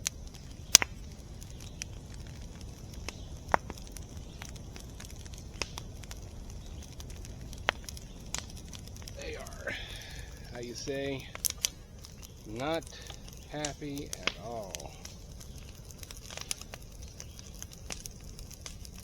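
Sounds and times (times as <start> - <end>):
sharp clicks and crackles: 0.0 - 19.0
steady low rumble: 0.0 - 19.0.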